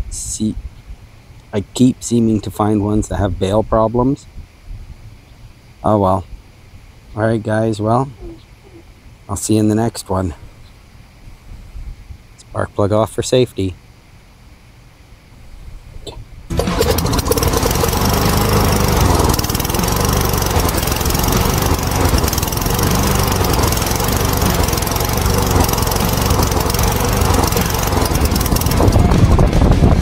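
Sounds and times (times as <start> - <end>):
lawnmower engine running: 16.5 - 30.0.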